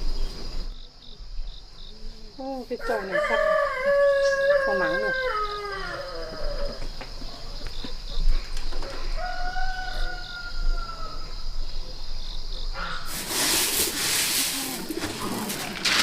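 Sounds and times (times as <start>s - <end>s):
rooster crowing: 2.8s - 6.9s, 8.9s - 11.4s
steady hiss-like noise: 10.4s - 15.6s.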